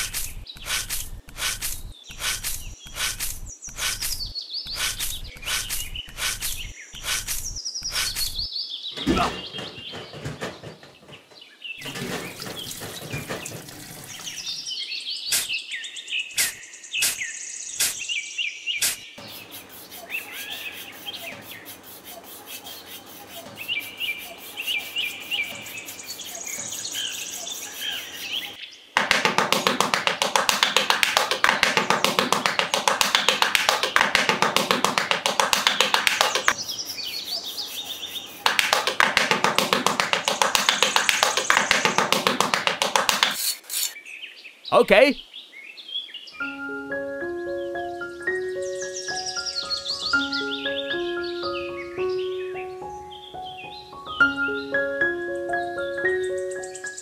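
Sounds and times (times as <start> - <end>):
hand trowel rasping over damp sand: 0.0 - 8.4, 18.8 - 44.0
birds chirping: 0.0 - 57.0
sharp taps: 29.0 - 36.6, 38.4 - 43.4.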